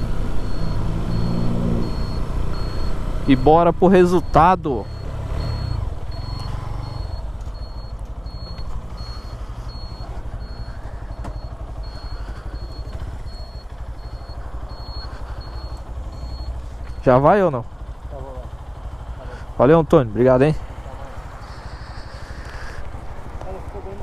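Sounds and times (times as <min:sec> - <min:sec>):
motorcycle engine idling: 0:00.0 - 0:24.0
short high beeps: 0:00.4 - 0:17.1.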